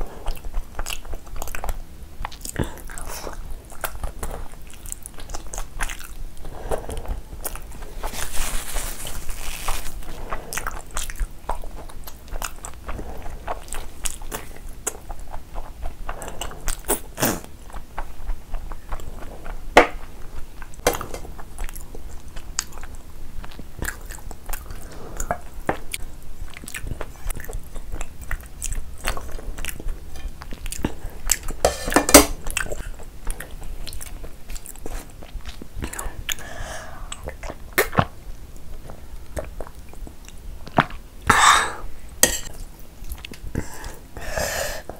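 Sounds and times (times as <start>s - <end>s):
chewing with wet mouth smacks: 0.1s - 6.2s, 10.0s - 31.6s, 37.1s - 41.0s, 42.4s - 44.0s.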